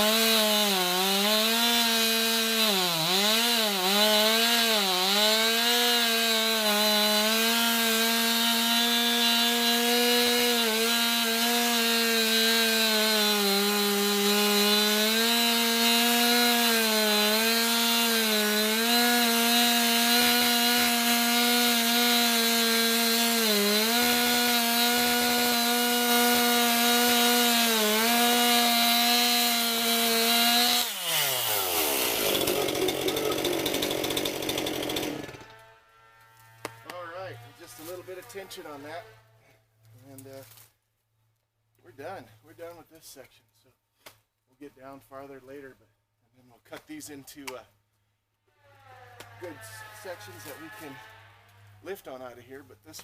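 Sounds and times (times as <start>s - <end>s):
chainsaw cutting wood: 0.0s - 39.0s.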